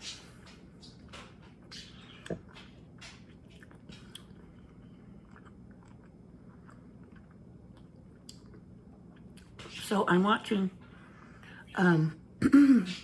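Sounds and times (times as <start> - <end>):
low steady hum: 0.0 - 13.0
person chewing food: 1.7 - 9.6.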